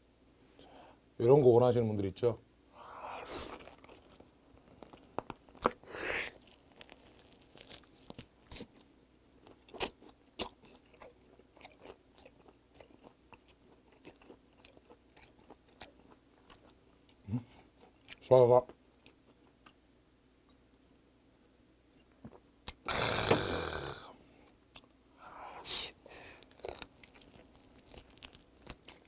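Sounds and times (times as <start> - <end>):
person chewing raw fish: 3.5 - 18.2, 26.4 - 29.0.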